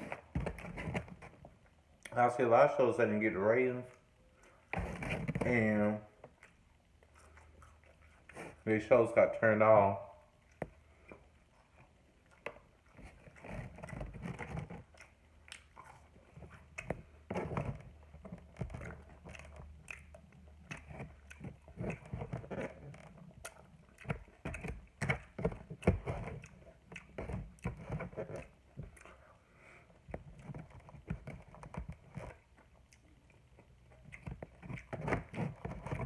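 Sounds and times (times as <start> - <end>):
close chewing with mouth smacks: 3.9 - 8.7, 10.3 - 36.0
crunchy chewing clicks: 3.9 - 8.7, 10.3 - 36.0.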